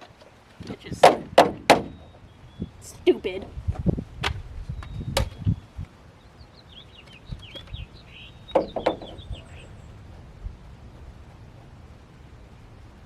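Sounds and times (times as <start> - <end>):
sharp knocks: 1.0 - 2.0, 8.5 - 9.3
small bird chirping: 4.6 - 10.1.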